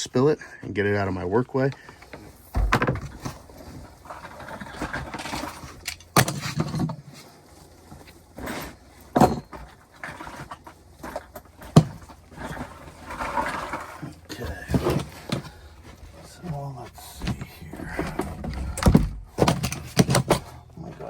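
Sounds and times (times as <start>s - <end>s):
equipment knocking and clunking: 1.8s - 3.5s, 14.6s - 21.0s.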